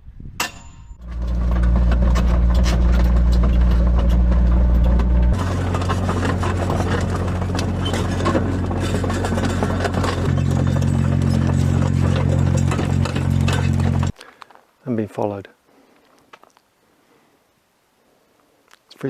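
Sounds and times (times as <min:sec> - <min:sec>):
steel tracks clattering: 0:00.5 - 0:14.1
excavator diesel engine running: 0:00.9 - 0:14.2.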